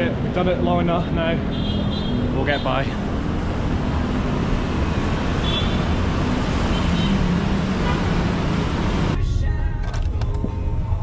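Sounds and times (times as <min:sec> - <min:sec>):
rumble of passing vehicles: 0:00.0 - 0:11.0.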